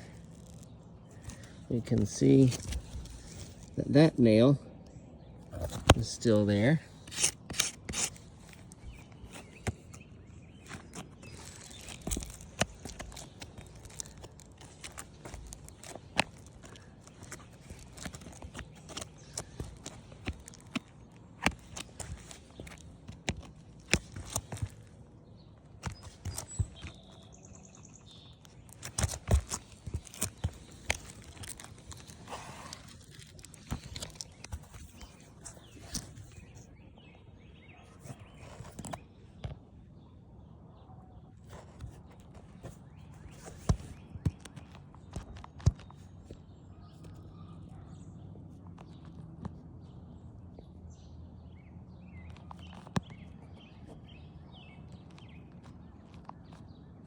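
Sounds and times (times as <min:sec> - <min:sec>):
footsteps on shingle roof: 0:00.0 - 0:04.0, 0:05.4 - 0:36.6, 0:41.5 - 0:46.6.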